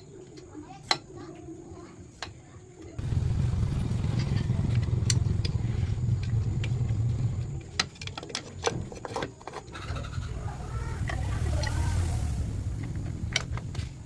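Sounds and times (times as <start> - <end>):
car engine idling: 3.0 - 7.6.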